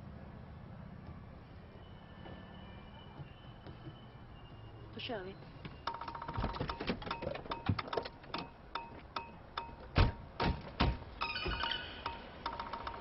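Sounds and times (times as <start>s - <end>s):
percussion on everyday objects: 5.7s - 10.6s, 11.5s - 13.0s.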